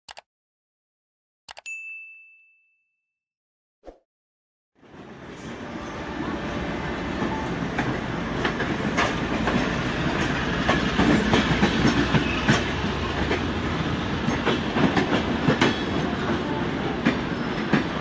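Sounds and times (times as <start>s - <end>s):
train wheels rumbling on rails: 5.3s - 18.0s
clickety-clack over rail joints: 7.2s - 18.0s.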